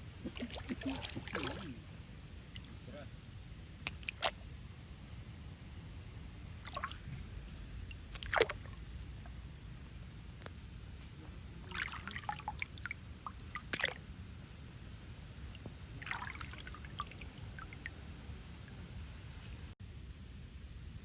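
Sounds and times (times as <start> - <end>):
water splashing and dripping: 0.2 - 1.8, 2.5 - 2.8, 3.8 - 4.4, 6.6 - 9.3, 11.7 - 14.0, 15.5 - 17.9.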